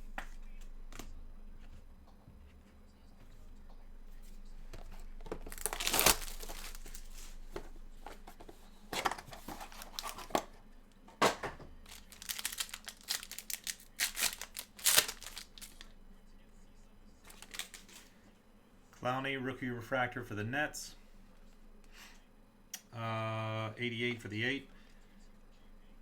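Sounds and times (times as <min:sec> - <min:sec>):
wrappers crinkling and ripping: 0:05.0 - 0:07.5, 0:09.0 - 0:10.5, 0:11.8 - 0:15.9, 0:17.3 - 0:18.1.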